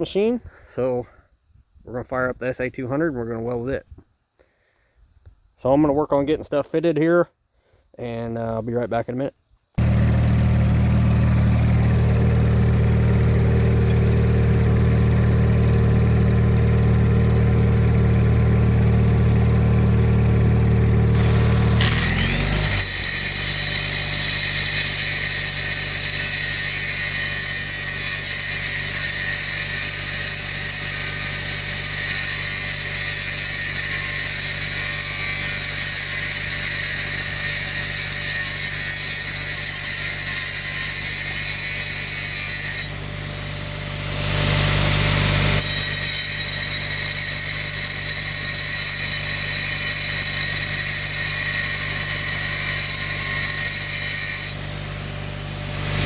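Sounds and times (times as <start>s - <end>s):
machine humming and hissing: 9.8s - 23.2s.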